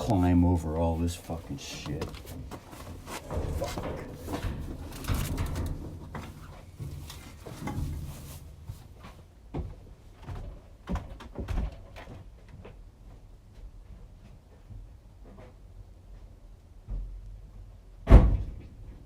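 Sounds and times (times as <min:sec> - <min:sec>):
rustling of things moved: 0:00.0 - 0:12.8
knocks and thumps of climbing: 0:00.0 - 0:19.0.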